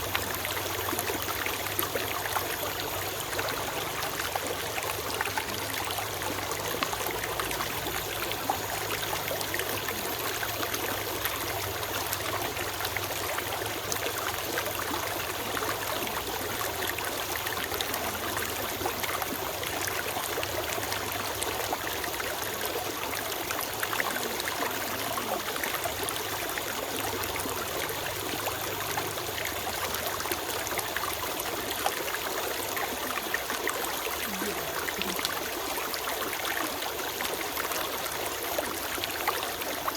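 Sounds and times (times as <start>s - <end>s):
stream trickling over rocks: 0.0s - 39.9s.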